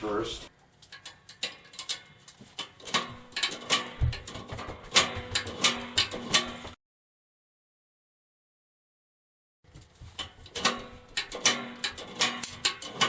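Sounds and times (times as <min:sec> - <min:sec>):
molding clicking and knocking: 0:00.7 - 0:06.8, 0:09.7 - 0:13.0.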